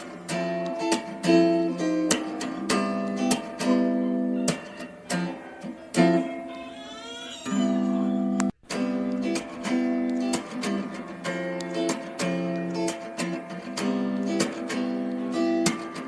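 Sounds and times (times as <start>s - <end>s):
acoustic guitar strumming: 0.0s - 6.8s, 7.4s - 16.0s.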